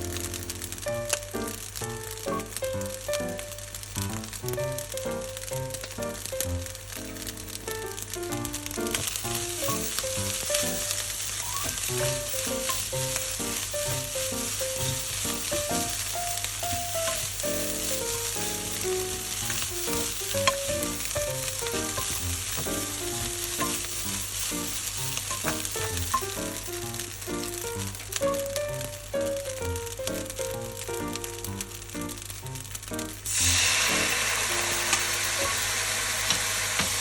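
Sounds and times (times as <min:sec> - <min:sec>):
rice sizzling in a frying pan: 0:00.0 - 0:37.0
background music: 0:04.2 - 0:11.1, 0:11.9 - 0:24.8, 0:25.4 - 0:34.3.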